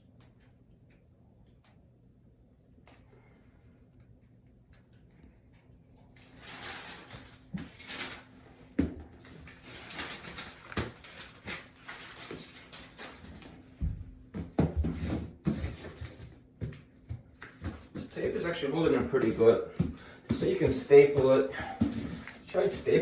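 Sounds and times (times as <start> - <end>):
heating mat and tape rustling: 6.0 - 23.0.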